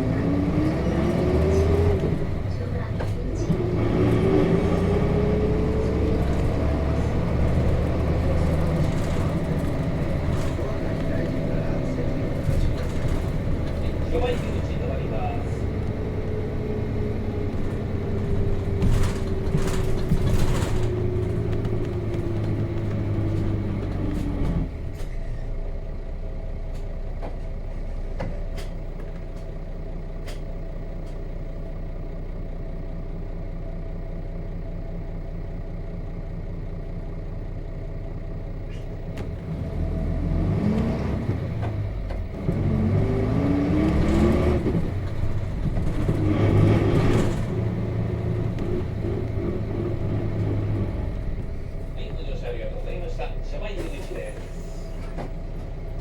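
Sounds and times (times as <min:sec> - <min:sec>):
bus diesel engine: 0:00.0 - 0:56.0.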